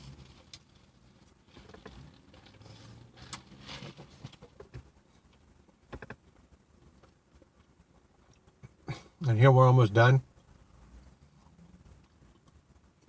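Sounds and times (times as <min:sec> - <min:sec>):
small clicks and rustles: 0:00.0 - 0:08.7.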